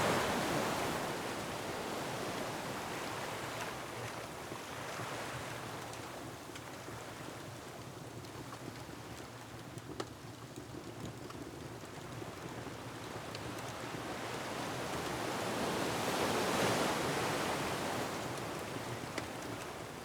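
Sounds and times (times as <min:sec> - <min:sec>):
faint wood fire crackles: 0:03.1 - 0:15.4, 0:16.6 - 0:20.0.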